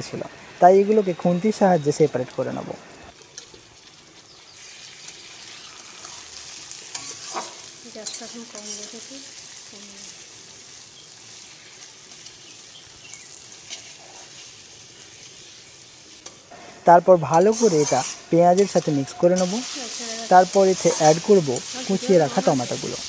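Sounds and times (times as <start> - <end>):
prawns and onions sizzling in oil: 0.0 - 23.0
steel spatula scraping pan: 17.3 - 19.2
metal on metal squeaks: 17.4 - 19.5.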